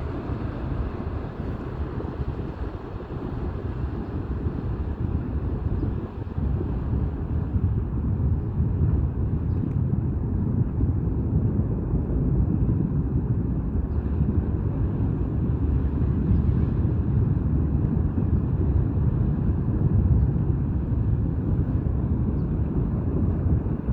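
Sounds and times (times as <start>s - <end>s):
ship engine rumble: 0.0s - 11.0s
wind buffeting microphone: 0.0s - 23.9s.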